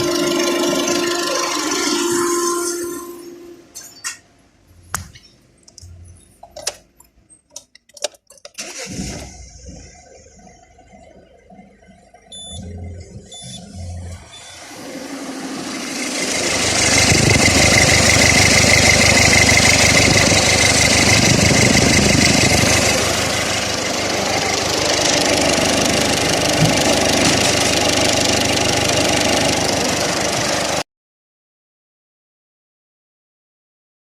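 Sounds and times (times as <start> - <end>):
car engine running with whine: 9.5 - 30.8.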